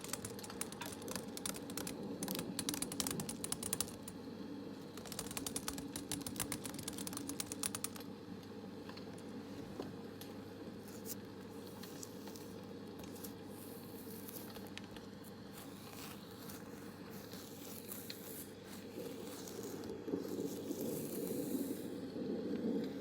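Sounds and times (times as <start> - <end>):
rustling and crinkling: 0.0 - 4.1, 10.8 - 21.9
small crackles: 0.0 - 9.4, 10.2 - 23.0
steady hiss: 15.4 - 23.0.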